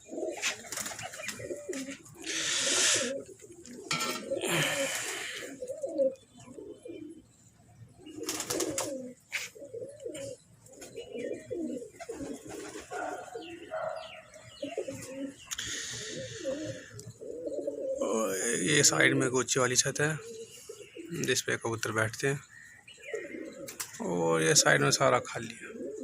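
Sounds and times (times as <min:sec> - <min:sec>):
pigeons cooing: 0:00.0 - 0:26.0.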